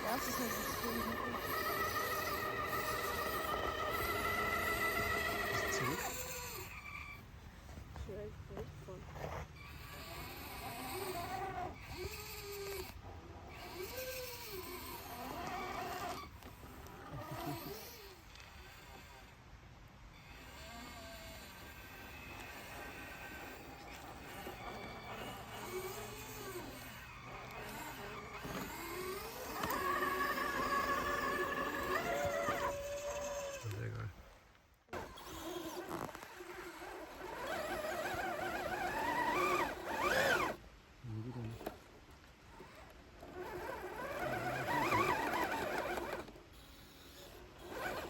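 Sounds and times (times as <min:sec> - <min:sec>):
electric motor and gearbox whining: 0:00.0 - 0:48.0.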